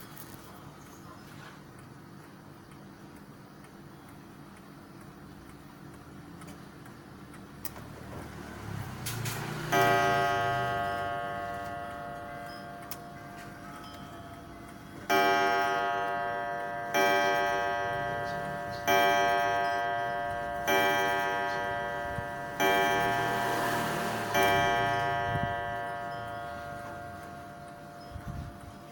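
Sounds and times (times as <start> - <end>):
clock ticking: 1.7 - 28.9
clock chime strikes: 9.6 - 28.9.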